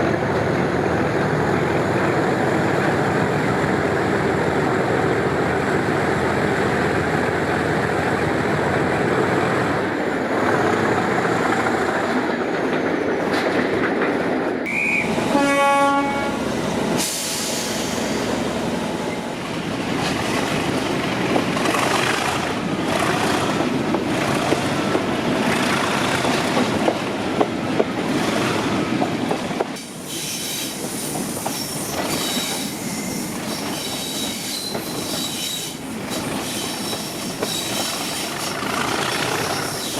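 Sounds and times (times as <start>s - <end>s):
diesel locomotive engine working hard: 0.0s - 39.9s
locomotive horn: 14.7s - 16.4s.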